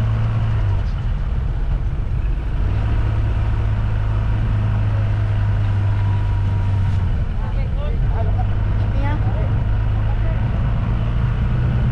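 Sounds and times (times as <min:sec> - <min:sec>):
vehicle engine droning: 0:00.0 - 0:11.9.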